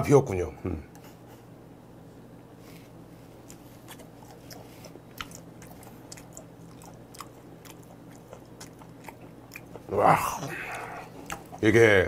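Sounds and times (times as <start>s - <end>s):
steady low hum: 0.0s - 12.0s
man chewing: 2.6s - 11.7s
wet mouth clicks and smacks: 3.4s - 9.7s, 10.7s - 11.6s.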